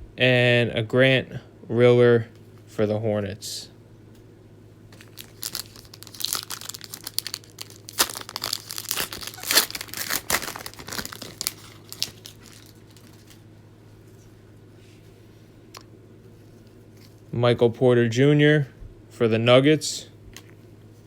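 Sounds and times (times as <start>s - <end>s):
plastic wrapper tearing and crinkling: 5.0s - 13.4s.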